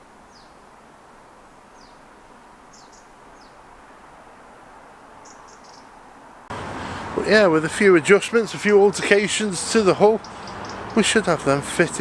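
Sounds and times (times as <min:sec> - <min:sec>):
outdoor background noise: 0:00.0 - 0:12.0
faint bird chirps: 0:02.7 - 0:04.0, 0:05.2 - 0:06.0, 0:10.2 - 0:11.0.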